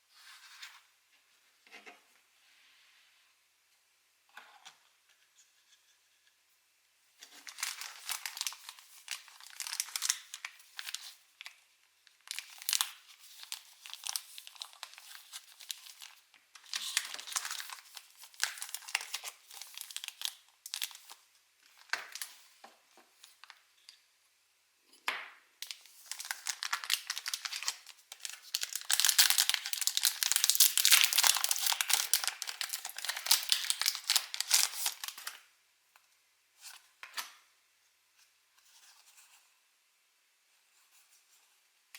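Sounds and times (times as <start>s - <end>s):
foil wrappers crinkling and tearing: 7.3s - 11.6s, 12.2s - 22.4s, 25.6s - 35.4s.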